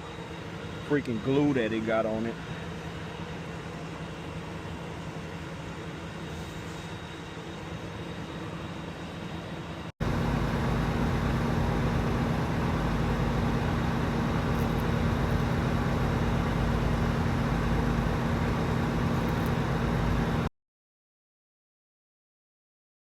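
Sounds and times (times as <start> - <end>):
vehicle engine running: 10.0 - 20.5.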